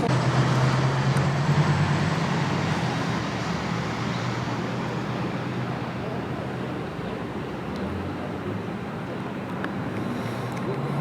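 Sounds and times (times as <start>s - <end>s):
train rumbling on rails: 0.0s - 6.5s.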